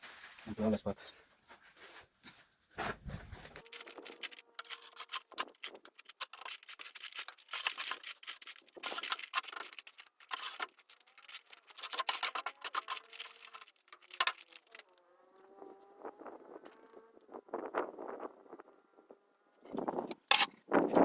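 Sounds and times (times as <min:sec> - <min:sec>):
hand tool scraping wet mortar: 0:02.8 - 0:15.0, 0:19.7 - 0:21.0.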